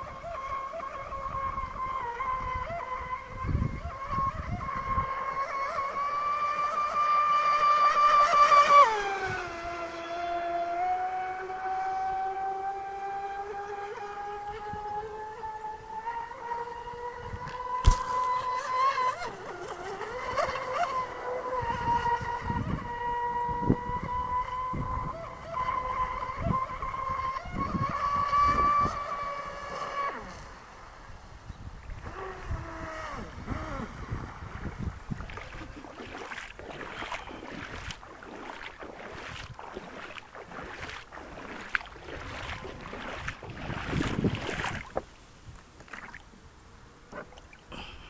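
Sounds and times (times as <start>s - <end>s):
rc boat motor whining: 0.0s - 45.9s
wind on microphone: 0.0s - 46.4s
short splashing: 17.6s - 21.8s, 33.4s - 46.3s.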